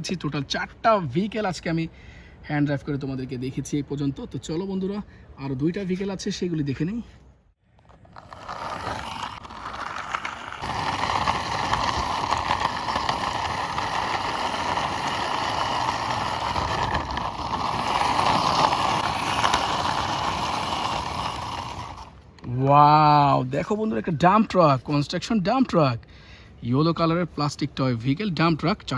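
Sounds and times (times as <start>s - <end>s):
toy truck wheels rolling: 7.7s - 22.4s.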